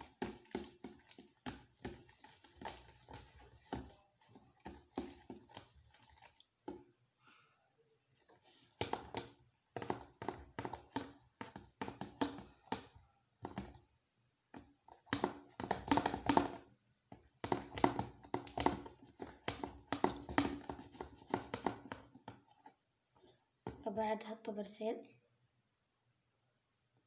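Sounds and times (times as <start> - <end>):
stirrer clicking in slime: 0.0 - 6.8, 8.2 - 13.9, 14.6 - 22.8.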